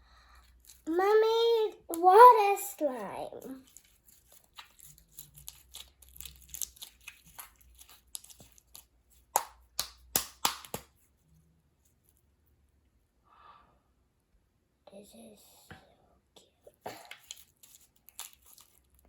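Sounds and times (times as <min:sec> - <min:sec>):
slime squished by hand crackling: 0:03.7 - 0:11.0, 0:17.0 - 0:19.0.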